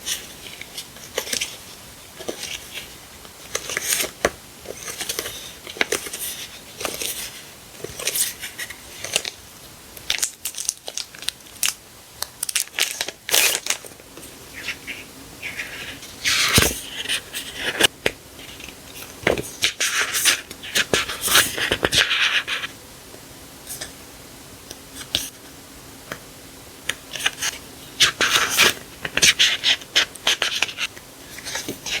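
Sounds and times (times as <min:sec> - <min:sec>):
packaging crinkling: 0:10.1 - 0:22.7
packaging rustling: 0:10.1 - 0:22.7.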